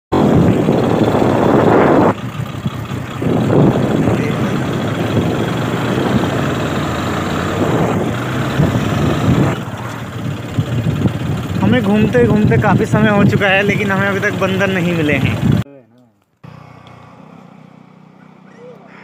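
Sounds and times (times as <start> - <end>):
wind rushing over microphone: 0.1 - 14.0, 14.9 - 15.6
vehicle engine running: 0.1 - 15.6, 16.4 - 19.0.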